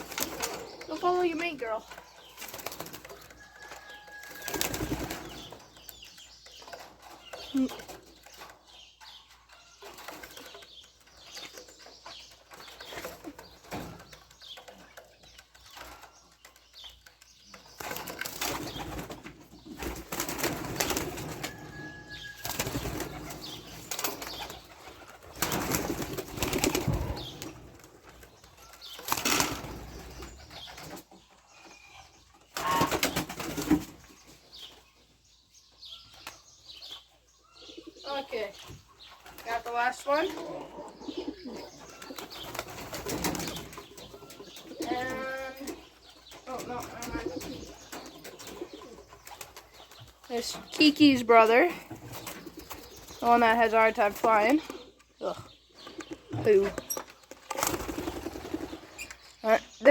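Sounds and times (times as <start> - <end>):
pigeon wings flapping: 4.3 - 5.6, 22.4 - 28.2, 57.4 - 58.8.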